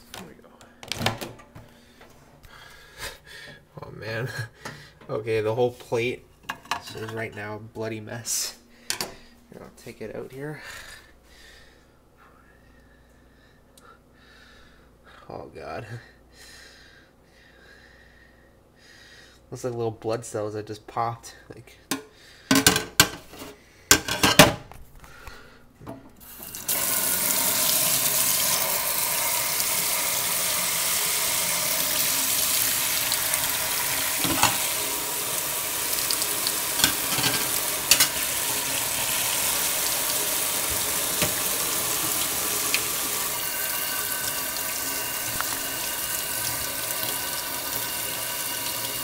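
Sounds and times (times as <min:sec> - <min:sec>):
dishware clinking: 0:34.2 - 0:34.7, 0:36.8 - 0:38.2
tap running into a sink: 0:40.5 - 0:43.0.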